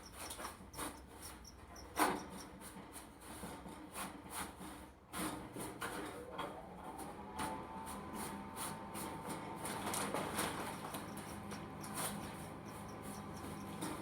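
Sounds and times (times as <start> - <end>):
scraping and rubbing strokes: 0.0 - 4.6, 8.6 - 14.0.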